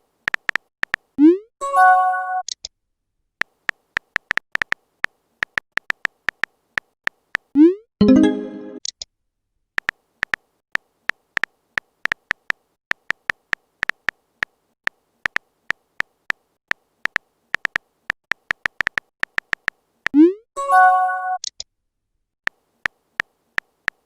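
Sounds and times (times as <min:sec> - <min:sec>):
phone keyboard tapping clicks: 0:00.3 - 0:01.1, 0:03.4 - 0:04.8, 0:05.4 - 0:07.5, 0:17.0 - 0:19.8.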